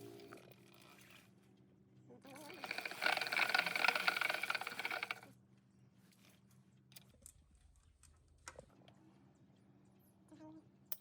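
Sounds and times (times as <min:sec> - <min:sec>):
rapid mechanical rattling: 0:02.4 - 0:05.3.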